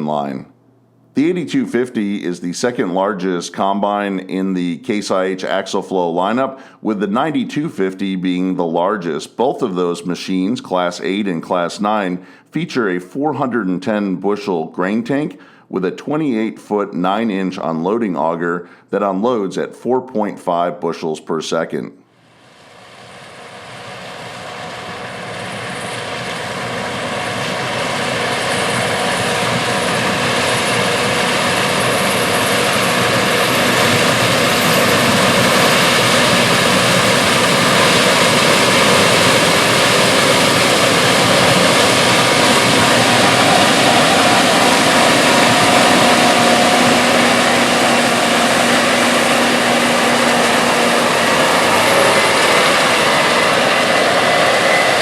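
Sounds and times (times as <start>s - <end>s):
combine harvester running: 22.5s - 55.0s.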